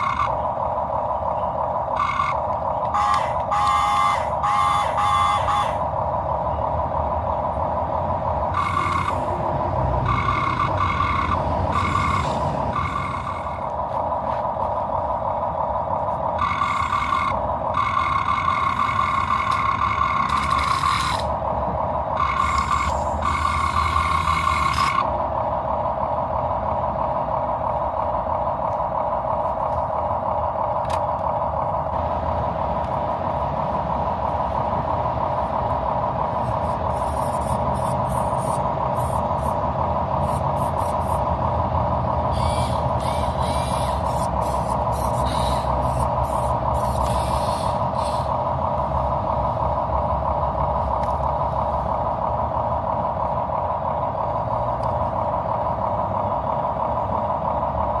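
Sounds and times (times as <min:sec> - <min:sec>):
toy truck motor whine: 0:00.0 - 0:00.5, 0:01.9 - 0:05.9, 0:08.5 - 0:09.4, 0:10.0 - 0:13.7, 0:16.4 - 0:21.4, 0:22.1 - 0:25.1, 0:42.3 - 0:48.4
hissing bursts: 0:42.3 - 0:48.4.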